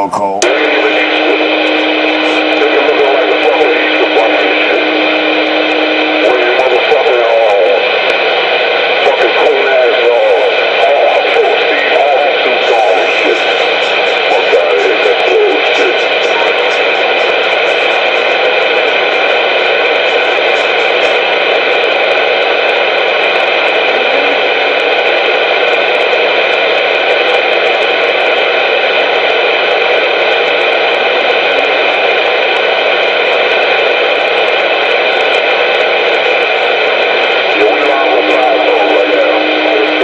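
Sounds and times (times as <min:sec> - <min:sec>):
steady tones: 0:00.0 - 0:22.5, 0:37.1 - 0:40.0
radio static hiss: 0:00.0 - 0:40.0.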